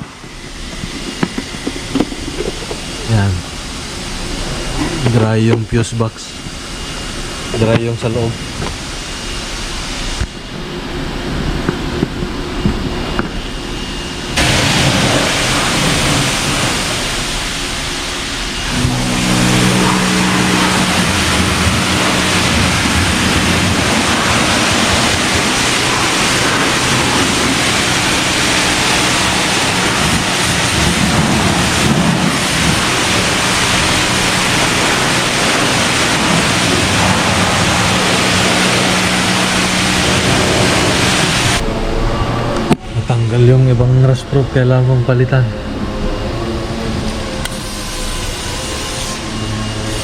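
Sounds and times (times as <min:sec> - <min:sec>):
motor humming: 0:00.0 - 0:05.6, 0:06.2 - 0:43.9
loud rushing hiss: 0:13.5 - 0:43.2, 0:46.9 - 0:50.0.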